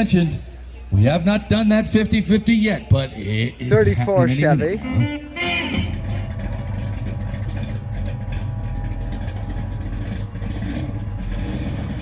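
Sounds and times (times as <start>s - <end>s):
car engine running: 3.8s - 12.0s.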